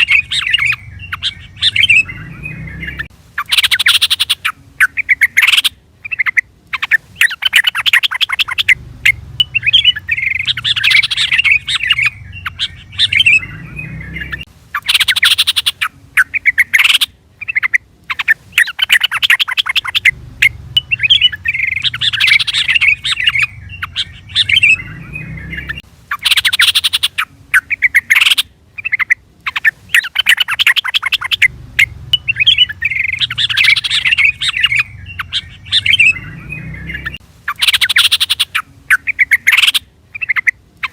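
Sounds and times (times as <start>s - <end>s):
bulbul bubbly chattering call: 0.0s - 40.9s
low hum: 8.6s - 14.5s, 20.0s - 25.8s, 31.4s - 37.2s.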